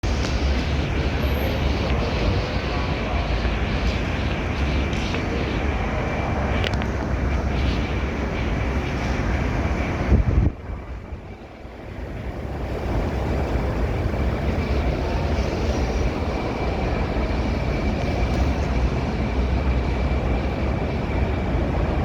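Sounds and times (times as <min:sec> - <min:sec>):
wall fans rushing air: 0:00.0 - 0:22.0.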